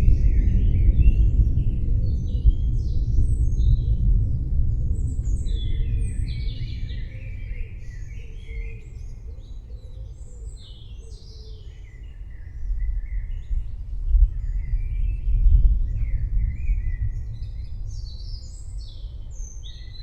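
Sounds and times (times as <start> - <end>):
rolling thunder: 0.0 - 8.8, 13.5 - 19.7
songbirds chirping and singing: 0.0 - 20.0.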